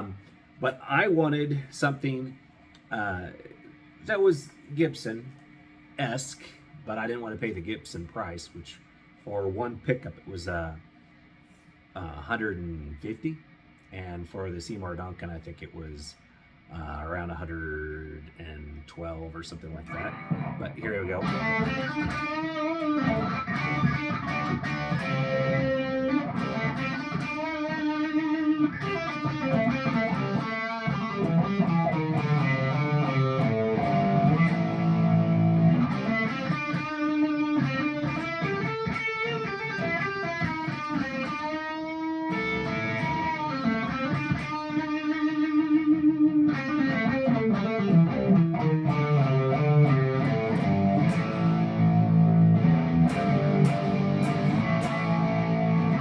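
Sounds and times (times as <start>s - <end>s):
overdriven electric guitar: 19.8s - 56.0s.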